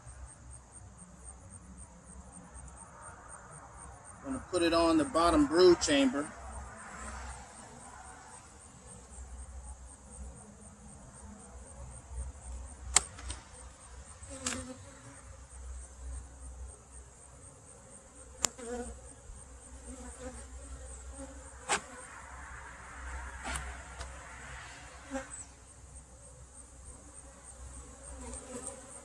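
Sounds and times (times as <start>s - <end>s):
honeybees buzzing: 3.9s - 29.0s
hive parts clicking: 12.8s - 13.6s.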